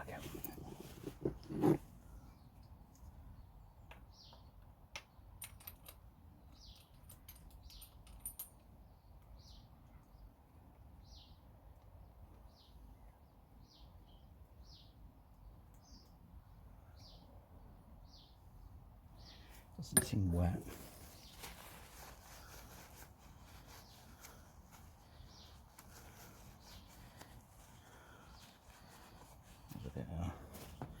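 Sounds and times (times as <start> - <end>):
bird chirping: 12.4 - 22.6, 23.5 - 31.0.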